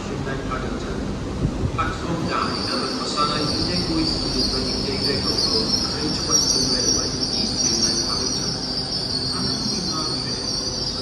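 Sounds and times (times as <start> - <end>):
train rumbling: 0.0 - 11.0
train wheels squealing: 2.1 - 11.0.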